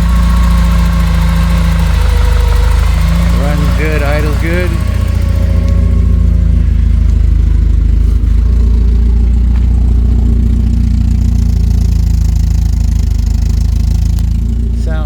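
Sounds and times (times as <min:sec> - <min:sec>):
race car engine idling: 0:00.0 - 0:15.0.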